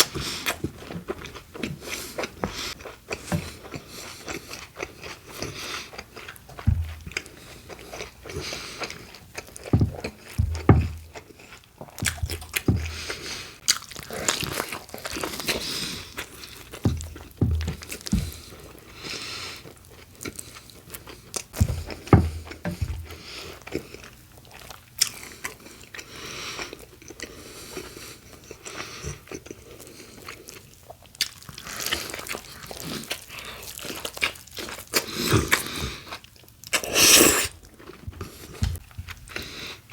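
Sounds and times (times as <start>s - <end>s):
crunching and chewing sandwich: 0.0s - 39.9s
low thumps: 6.7s - 7.2s, 9.8s - 11.1s, 12.0s - 13.0s, 16.9s - 18.4s, 21.6s - 23.2s.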